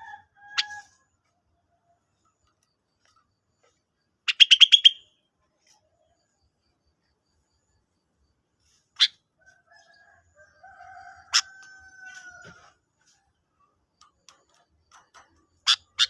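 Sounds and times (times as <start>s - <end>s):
bird chirping and calling: 4.3s - 5.1s, 14.9s - 16.0s.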